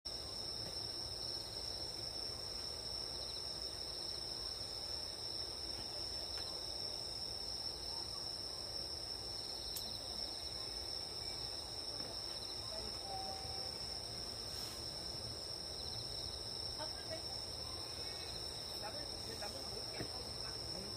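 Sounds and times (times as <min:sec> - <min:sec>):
insects trilling: 0:00.1 - 0:20.9
pulsing insect trill: 0:06.7 - 0:20.9.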